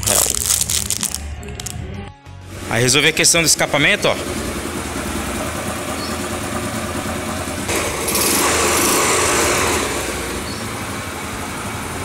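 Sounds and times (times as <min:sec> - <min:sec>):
motorcycle engine running: 0:02.4 - 0:12.0.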